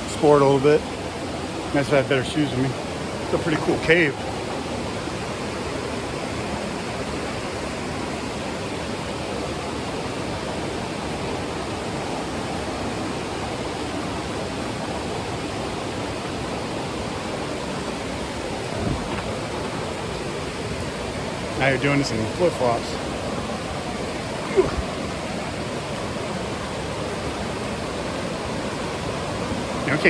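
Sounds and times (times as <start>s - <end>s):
steady rushing noise: 0.0s - 30.0s
brief thump: 18.7s - 19.4s.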